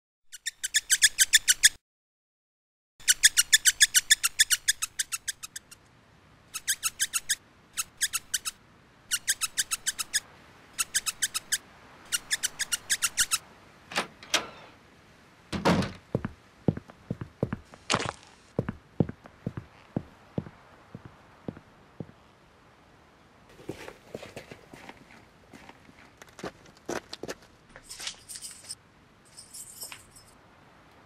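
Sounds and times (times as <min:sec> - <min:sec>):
small bird chirping: 0:00.3 - 0:01.8, 0:03.0 - 0:05.9, 0:06.5 - 0:13.4.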